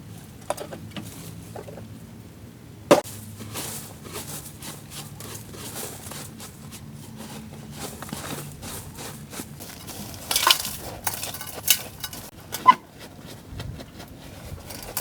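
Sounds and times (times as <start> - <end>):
quick clicks and scrapes: 9.6 - 12.8, 14.0 - 15.0.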